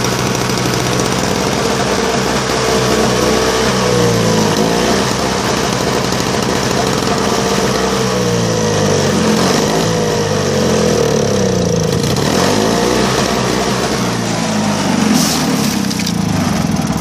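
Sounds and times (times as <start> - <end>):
snowblower engine surging: 0.0 - 17.0.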